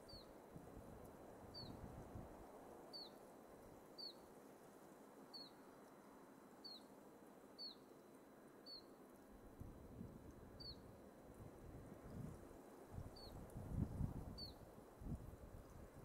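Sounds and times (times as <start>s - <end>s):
faint wind in pine trees: 0.0s - 16.0s
bird chirping: 7.6s - 7.9s, 8.6s - 8.9s.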